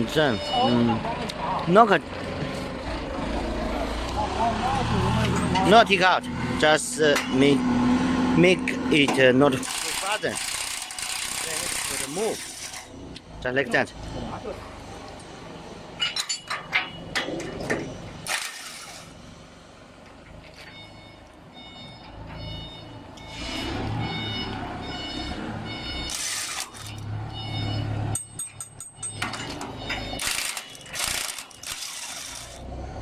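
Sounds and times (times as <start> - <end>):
warning beeper: 0.0 - 1.1, 26.8 - 28.4.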